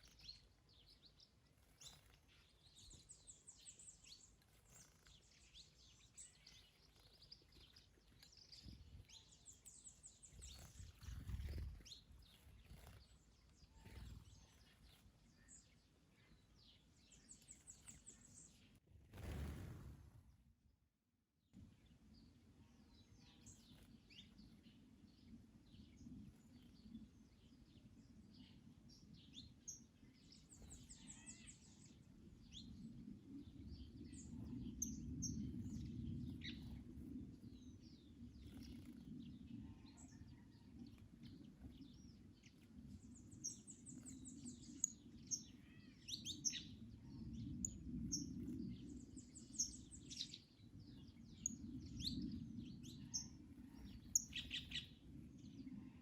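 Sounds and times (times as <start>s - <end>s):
small birds chirping: 0.0s - 20.0s, 21.6s - 56.0s
low wind rumble: 31.5s - 56.0s.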